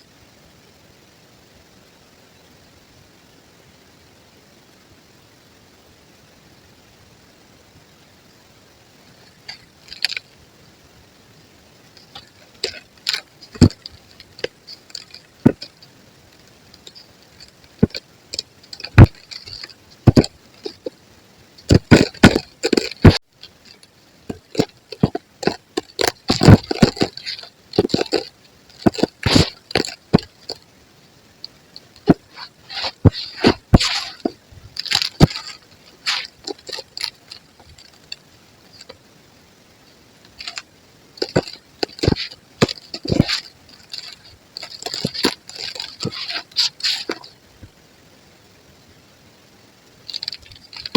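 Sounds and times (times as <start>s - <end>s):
chalk crushed by hand crunching: 12.0s - 15.8s, 16.8s - 20.9s, 21.6s - 30.6s, 32.0s - 38.0s, 41.2s - 47.3s.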